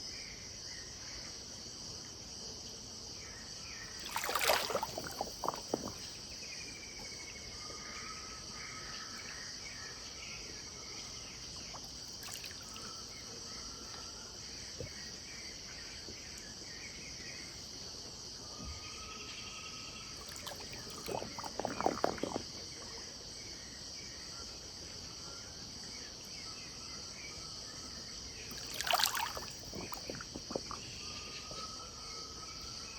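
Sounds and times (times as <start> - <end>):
insect chorus: 0.0 - 32.9
sharp clatter or splashing: 4.0 - 6.2, 11.6 - 13.0, 20.2 - 22.6, 28.5 - 31.0.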